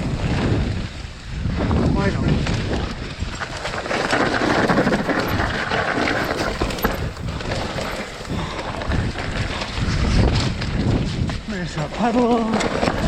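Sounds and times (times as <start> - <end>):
bike rushing downhill: 3.2 - 10.9
bike knocking and rattling: 3.7 - 8.8, 12.6 - 13.0.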